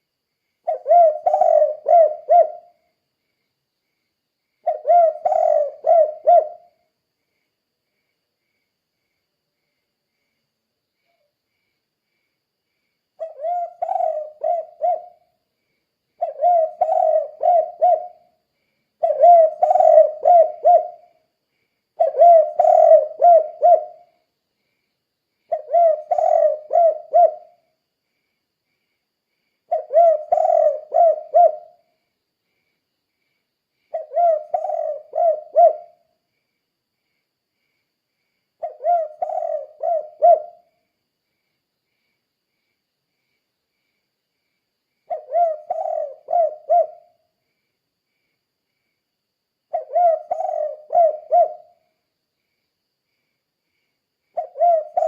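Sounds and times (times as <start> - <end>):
dove cooing: 0.7 - 2.8, 4.6 - 6.8, 13.2 - 15.2, 16.2 - 18.4, 19.0 - 21.2, 22.0 - 24.1, 25.5 - 27.6, 29.7 - 31.8, 33.9 - 36.0, 38.6 - 40.7, 45.1 - 47.2, 49.7 - 51.8, 54.4 - 55.0.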